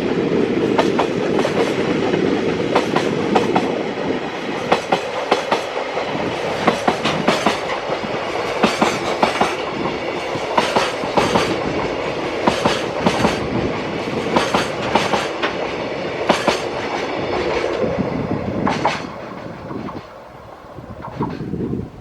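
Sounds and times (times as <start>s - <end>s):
freight train rumble: 0.0s - 22.0s
train wheels clicking over rail joints: 0.2s - 20.2s.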